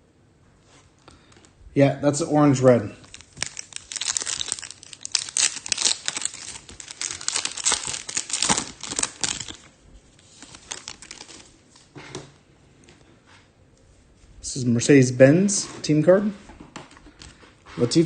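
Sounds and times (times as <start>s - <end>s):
card pack wrapper tearing and crinkling: 3.0s - 11.6s.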